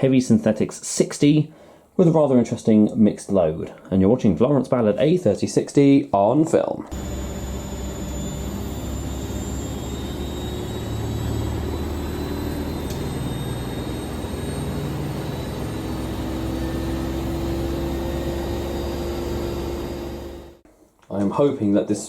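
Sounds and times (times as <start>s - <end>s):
low hum: 6.9s - 20.6s
mechanical whir: 6.9s - 20.6s.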